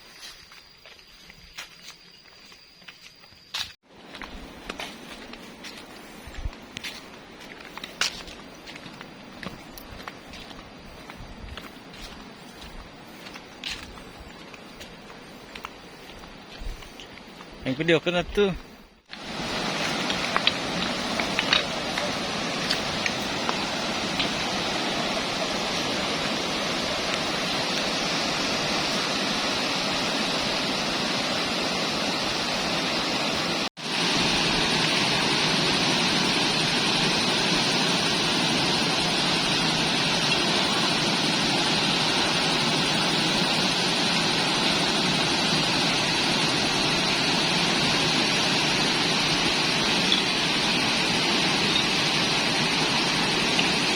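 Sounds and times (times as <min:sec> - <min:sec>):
waterfall rushing: 0:19.1 - 0:53.9.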